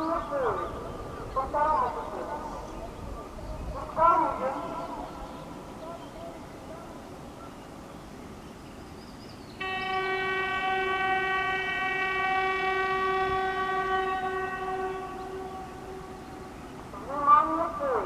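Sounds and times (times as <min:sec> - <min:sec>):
train horn: 0:09.6 - 0:16.9.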